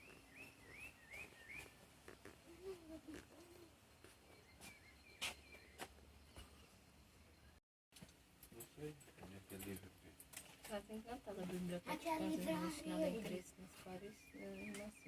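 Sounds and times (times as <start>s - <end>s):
faint songbird whistling: 0.0s - 1.8s, 2.5s - 6.7s, 13.3s - 15.0s.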